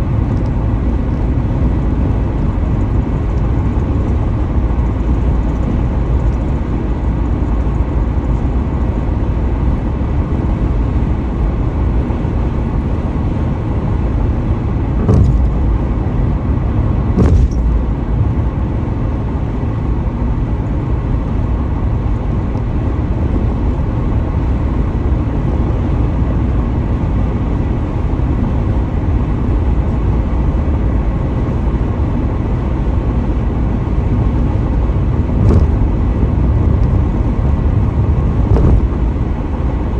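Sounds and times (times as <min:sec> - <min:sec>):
road and tyre rumble: 0:00.0 - 0:39.9
brief thumps: 0:15.0 - 0:15.9, 0:17.2 - 0:18.0, 0:35.4 - 0:36.9, 0:38.5 - 0:39.0.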